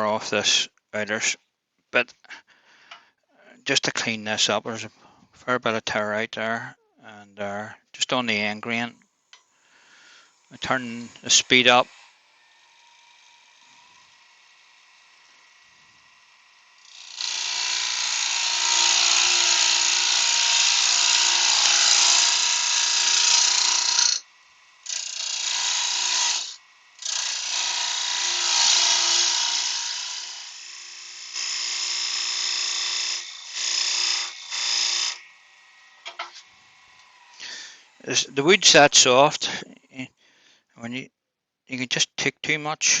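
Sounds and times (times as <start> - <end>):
lathe tool hissing cut on wood: 10.0 - 39.6.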